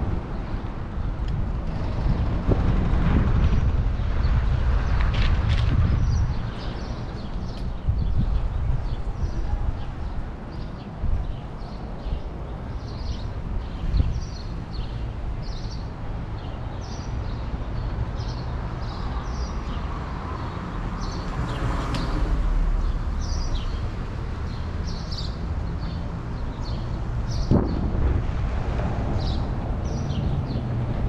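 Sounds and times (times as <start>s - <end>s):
wind and riding noise: 0.0s - 31.0s
birds chirping: 5.8s - 22.2s.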